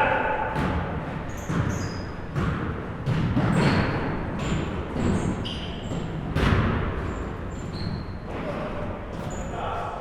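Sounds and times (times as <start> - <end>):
basketball bouncing on gym floor: 0.4 - 7.3
sneaker squeaks: 1.2 - 2.5, 3.1 - 6.4, 7.0 - 9.8.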